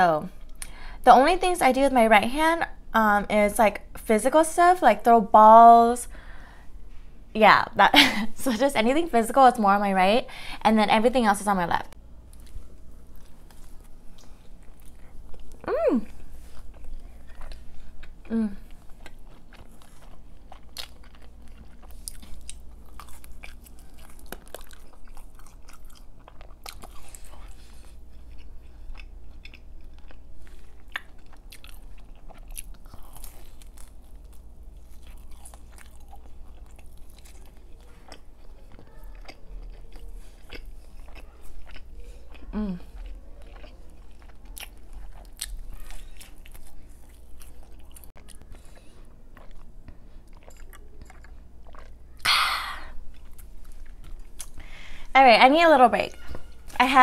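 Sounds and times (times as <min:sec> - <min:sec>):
biting and chewing pizza: 0:12.2 - 0:54.9
hum with falling pitch: 0:15.5 - 0:16.2.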